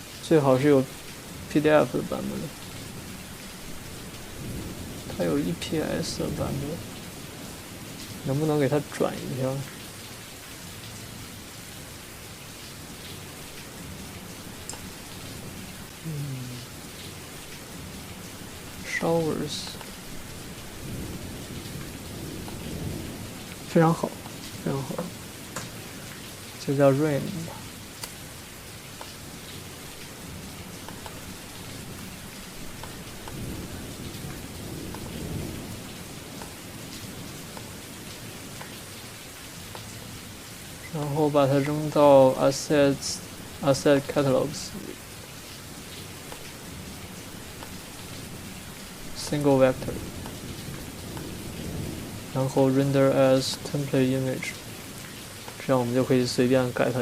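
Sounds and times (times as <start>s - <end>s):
rain falling: 0.0s - 57.0s
low rumbles of thunder: 1.3s - 10.0s, 16.8s - 26.6s, 27.2s - 40.4s, 46.0s - 53.4s.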